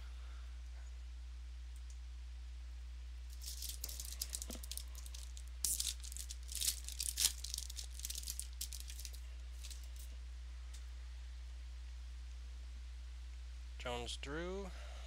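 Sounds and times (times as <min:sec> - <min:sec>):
low hum: 0:00.0 - 0:15.0
wrapper crinkling and tearing: 0:03.3 - 0:10.1.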